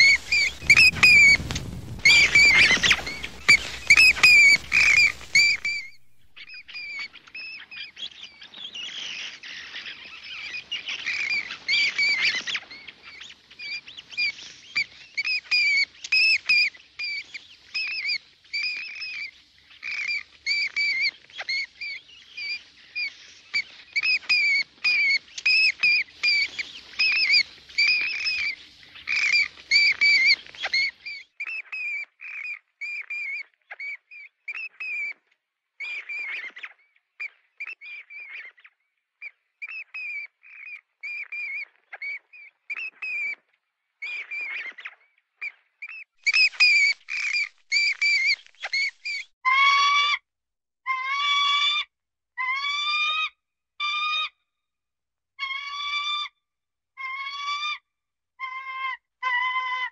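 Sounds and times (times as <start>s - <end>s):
noisy scrabbling: 0.0s - 6.8s
bird chirping: 0.0s - 14.3s, 44.0s - 49.3s.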